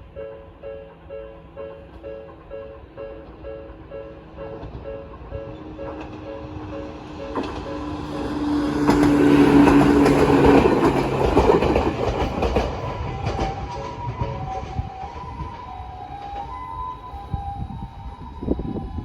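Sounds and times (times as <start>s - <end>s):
level crossing warning bell: 0.0s - 11.0s
wheels clacking over rail joints: 1.8s - 16.8s.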